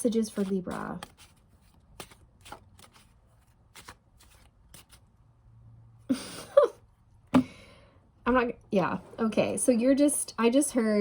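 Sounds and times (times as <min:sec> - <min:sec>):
cards being shuffled: 0:00.1 - 0:05.1.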